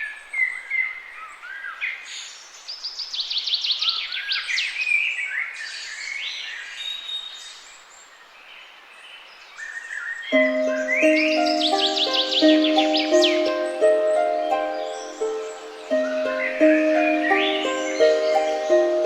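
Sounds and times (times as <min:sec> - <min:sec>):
forest background hiss: 0:00.0 - 0:19.0
birds calling: 0:10.4 - 0:19.0.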